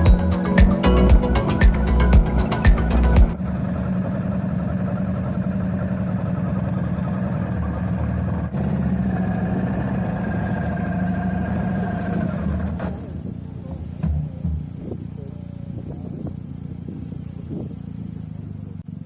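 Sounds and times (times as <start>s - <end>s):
motorcycle engine running: 0.0s - 3.4s.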